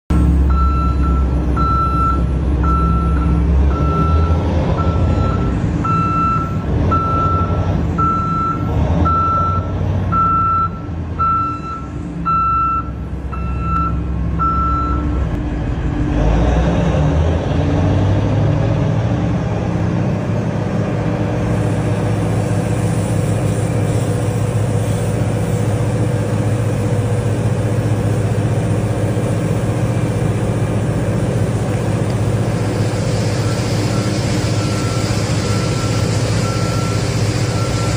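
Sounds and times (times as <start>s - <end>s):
reversing alarm beeps: 0.1s - 15.3s, 33.2s - 37.9s
diesel engine running: 0.1s - 37.9s.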